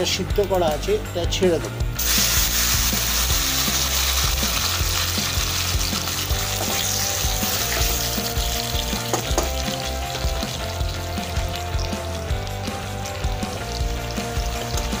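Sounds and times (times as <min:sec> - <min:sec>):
food sizzling in oil: 0:02.0 - 0:15.0.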